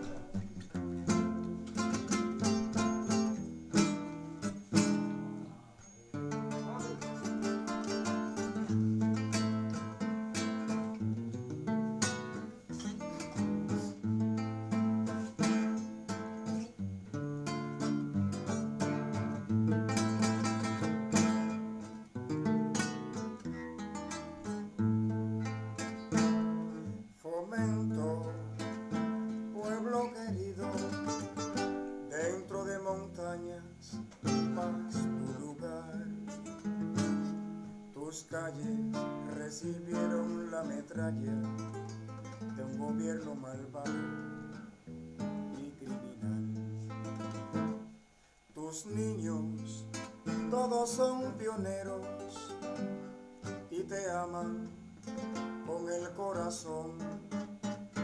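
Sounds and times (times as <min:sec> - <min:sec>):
acoustic guitar music: 0:00.0 - 0:58.0.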